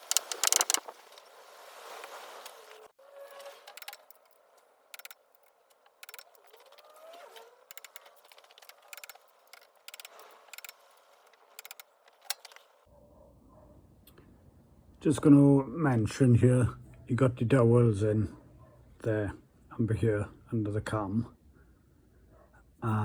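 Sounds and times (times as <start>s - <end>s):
metallic clicks of tools: 0.0s - 0.8s, 3.6s - 6.8s, 7.7s - 12.7s.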